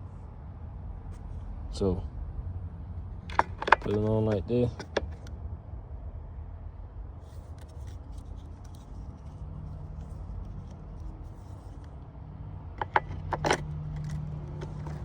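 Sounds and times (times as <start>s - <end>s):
saw chain clicks and scrapes: 3.2s - 5.3s, 12.8s - 15.0s.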